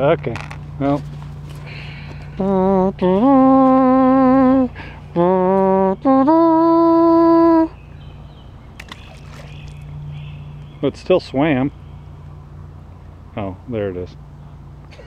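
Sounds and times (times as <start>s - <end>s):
person humming a slow tune: 1.7s - 7.8s.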